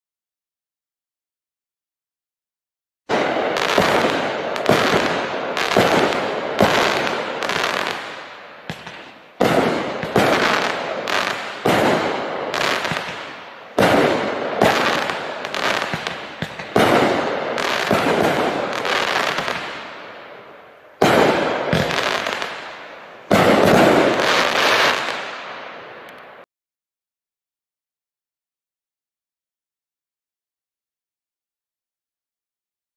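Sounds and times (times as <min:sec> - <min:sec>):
fireworks cake shots and bursts: 0:03.1 - 0:26.5.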